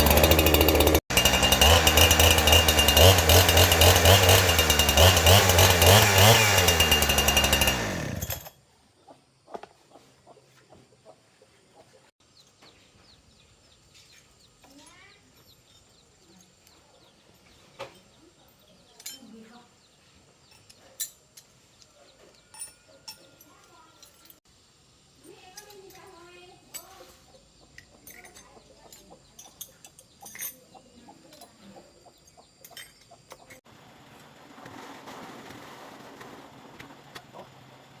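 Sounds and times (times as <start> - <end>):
faint birdsong chirps: 8.7 - 24.2, 26.2 - 33.6.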